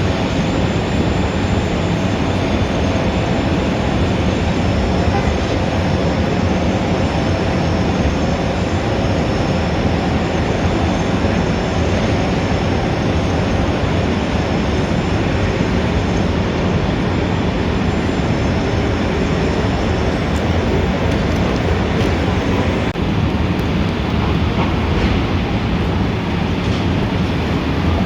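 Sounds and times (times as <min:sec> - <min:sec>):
city traffic rumble: 0:00.0 - 0:28.0.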